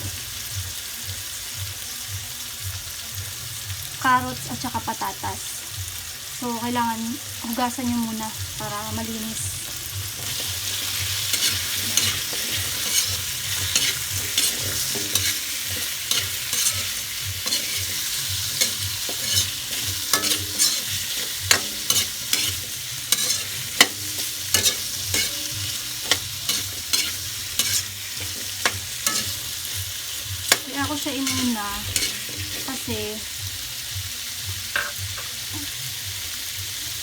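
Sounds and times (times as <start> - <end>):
vegetables sizzling in oil: 0.0 - 37.0
spatula scraping a pan: 10.1 - 32.9.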